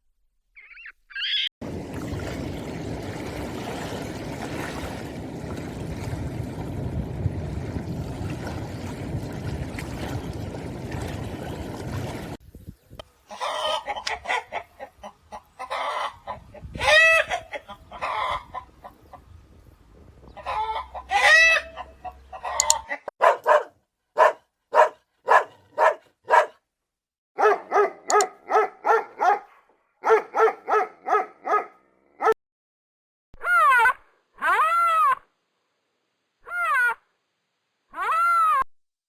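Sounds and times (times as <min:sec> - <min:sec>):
chickens clucking: 0:13.3 - 0:19.4, 0:20.2 - 0:23.1
rooster crowing: 0:20.4 - 0:23.0.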